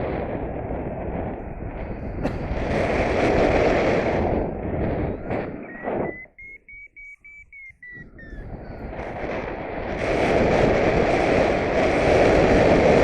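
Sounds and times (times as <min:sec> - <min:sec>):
wind buffeting microphone: 0:00.0 - 0:13.0
variometer quick beeps: 0:05.4 - 0:08.5.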